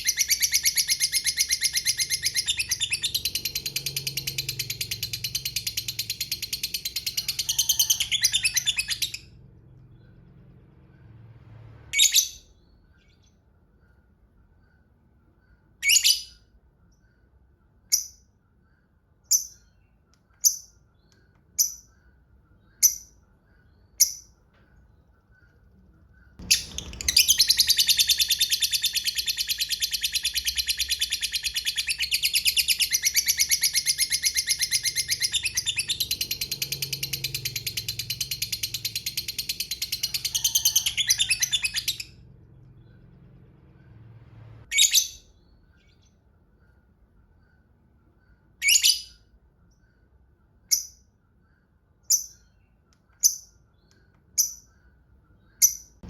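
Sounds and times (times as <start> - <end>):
lovebird chirping and trilling: 0.0 - 10.2, 11.9 - 14.0, 15.4 - 17.2, 17.8 - 18.4, 19.2 - 24.4, 26.2 - 43.0, 44.6 - 46.8, 48.3 - 49.4, 50.6 - 51.1, 52.0 - 56.0.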